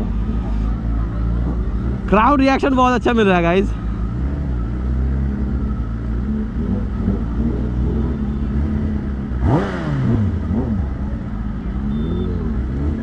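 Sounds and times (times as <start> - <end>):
motorcycle engine idling: 0.0 - 9.4
motorcycle engine revving: 3.8 - 13.0.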